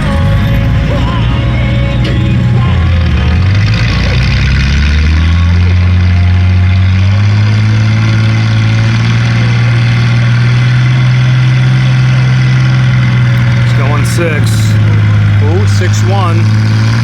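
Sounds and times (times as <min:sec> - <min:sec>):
tractor engine running hard: 0:00.0 - 0:17.0.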